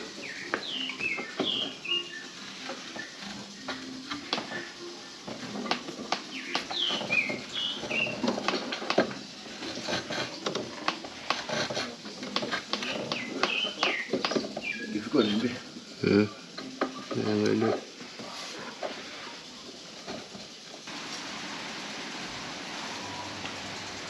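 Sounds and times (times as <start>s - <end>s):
small bird chirping: 0.0s - 5.2s, 6.2s - 8.4s, 12.8s - 17.6s.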